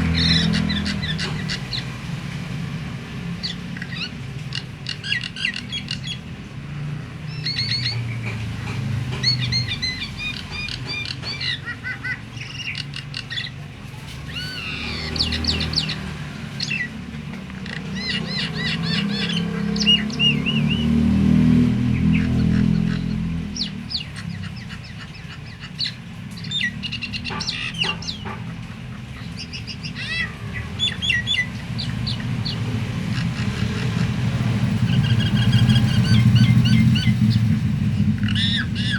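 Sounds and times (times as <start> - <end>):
starling chirps and whistles: 7.3 - 8.2, 14.2 - 17.0, 17.6 - 21.0, 29.2 - 38.9.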